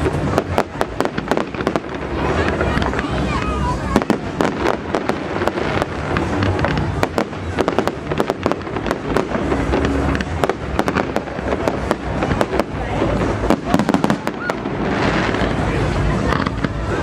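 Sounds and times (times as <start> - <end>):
fireworks bangs and crackles: 0.0 - 17.0
steady low rumble: 0.0 - 17.0.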